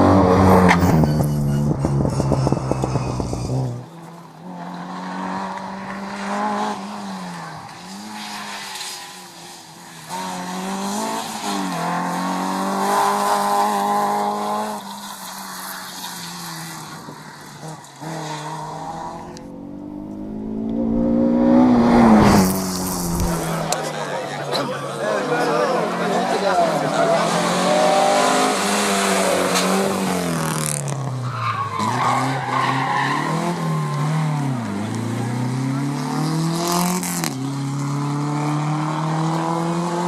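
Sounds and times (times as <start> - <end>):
rally car engine revving: 0.0 - 8.3, 16.2 - 24.5, 25.2 - 40.0
approaching car: 0.0 - 10.1, 14.2 - 38.1.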